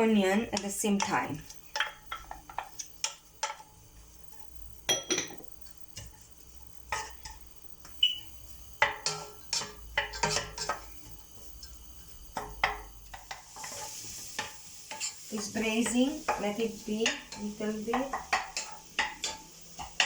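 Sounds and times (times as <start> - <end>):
utensils and pot clattering: 4.8 - 6.1, 8.8 - 10.9, 11.6 - 20.0.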